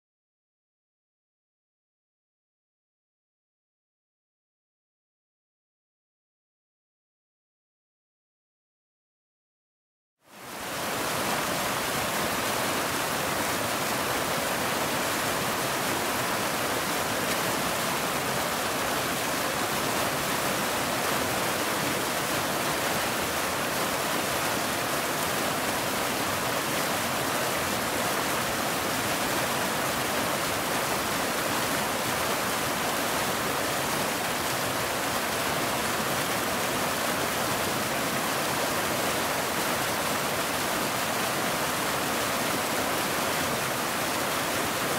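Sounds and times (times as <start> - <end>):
waterfall rushing: 10.3 - 44.9.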